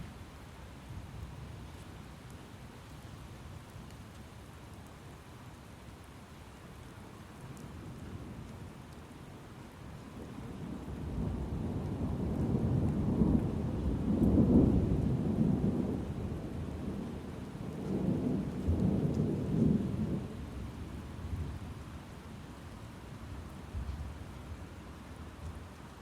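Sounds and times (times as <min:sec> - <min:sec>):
steady rain: 0:00.0 - 0:26.0
rolling thunder: 0:10.7 - 0:17.1.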